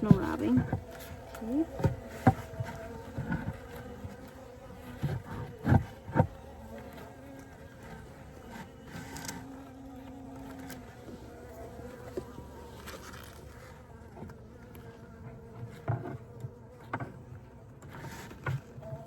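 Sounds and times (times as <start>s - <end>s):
wooden hive parts knocking: 0.0s - 10.3s
honey bees buzzing: 0.0s - 19.0s.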